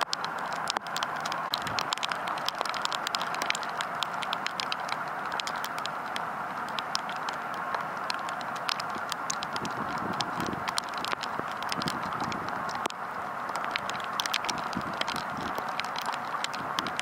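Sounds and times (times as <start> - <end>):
raindrop taps: 0.0 - 17.0
steady rain hiss: 0.0 - 17.0.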